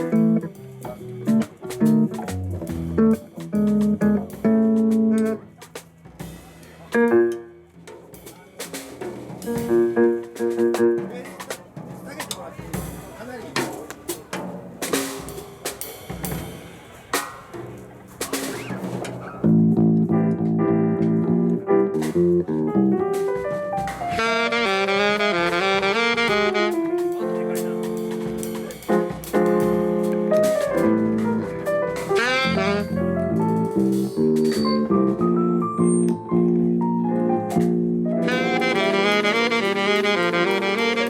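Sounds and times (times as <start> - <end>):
drum kit hits: 0.0 - 41.0
sustained band chords: 19.6 - 41.0
saxophone: 24.0 - 27.1, 32.1 - 33.4, 38.2 - 41.0.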